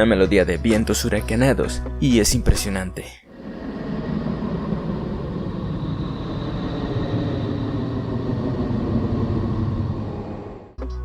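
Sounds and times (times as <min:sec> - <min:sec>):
steady rumbling roar: 0:03.3 - 0:10.8.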